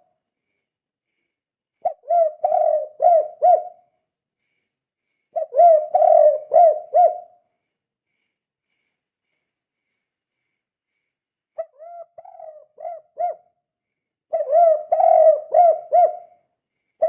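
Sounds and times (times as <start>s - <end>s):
dove cooing: 1.8s - 3.9s, 5.4s - 7.4s, 11.6s - 13.4s, 14.3s - 16.4s.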